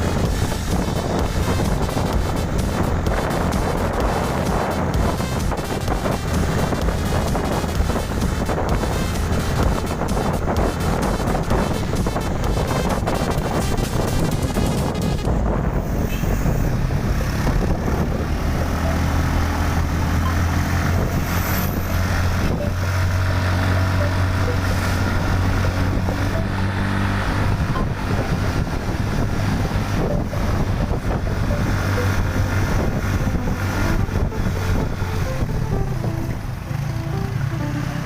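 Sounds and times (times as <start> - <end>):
road and wind noise: 0.0 - 38.0
vehicle engine running: 0.0 - 38.0.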